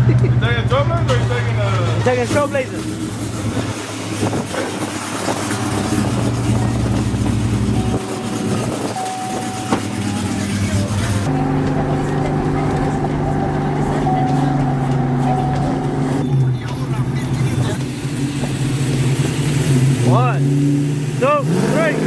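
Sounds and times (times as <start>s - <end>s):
vehicle engine running: 0.0s - 22.0s
road and wind noise hiss: 2.2s - 11.3s.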